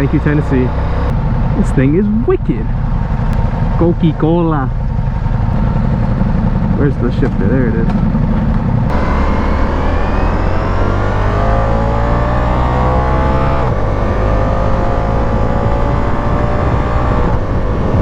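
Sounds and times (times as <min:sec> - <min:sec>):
motorcycle engine accelerating hard: 0:00.0 - 0:18.0.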